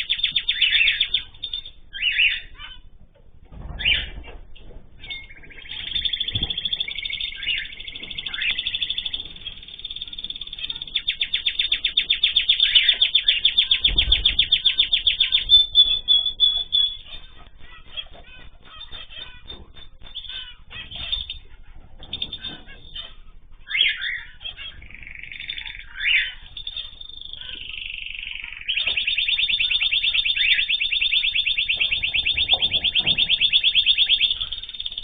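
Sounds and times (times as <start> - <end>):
fast bird trill: 0.0 - 2.9, 3.7 - 35.0
cage birds chirping: 0.0 - 35.0.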